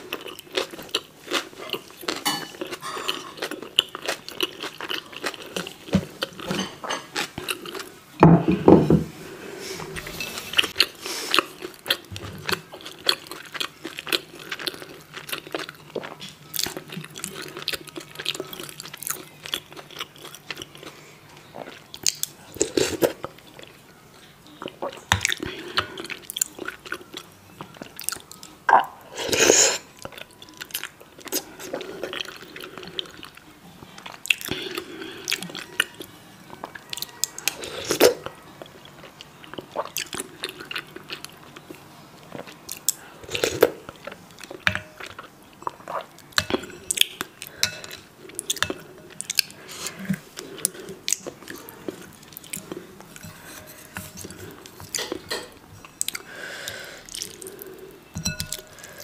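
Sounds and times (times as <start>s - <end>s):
chewing and mouth sounds: 0.0s - 7.9s, 24.5s - 59.0s.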